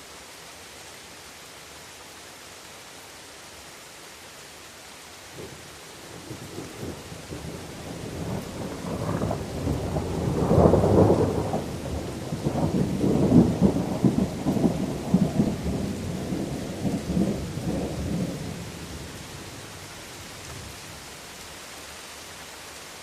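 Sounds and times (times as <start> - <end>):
steady rain hissing: 0.0 - 23.0
rolling thunder: 6.2 - 19.6.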